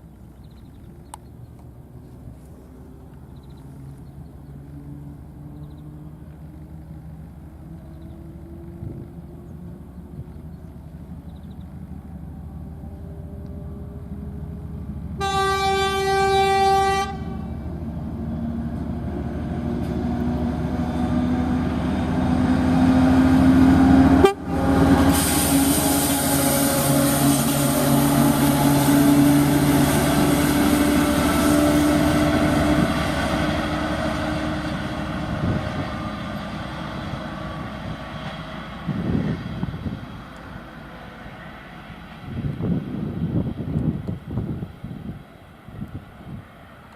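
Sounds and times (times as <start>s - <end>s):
train rolling noise: 6.2s - 46.9s
locomotive horn blast: 15.2s - 17.6s, 22.7s - 34.2s
diesel engine revving up: 17.6s - 43.6s.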